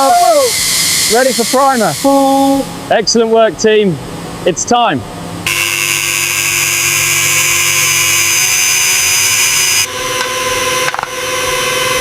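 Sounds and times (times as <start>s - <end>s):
power tool high whine: 0.0s - 2.7s, 5.5s - 12.0s.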